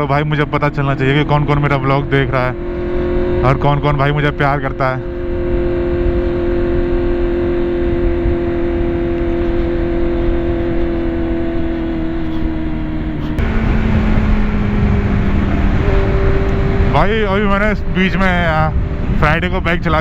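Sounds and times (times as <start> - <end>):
motorcycle engine at high revs: 0.0 - 20.0
wind rush over microphone: 5.0 - 20.0.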